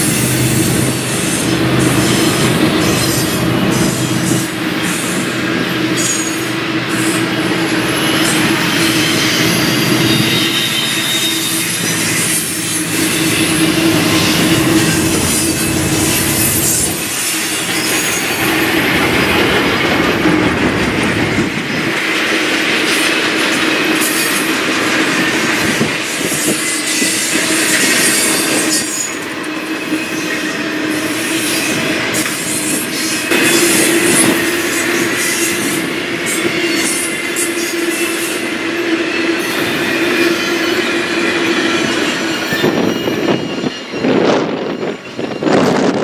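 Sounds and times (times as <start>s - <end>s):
steel wheels rumbling on rail: 0.0s - 46.0s
high-pitched wheel squeals: 6.0s - 19.0s, 26.1s - 45.9s.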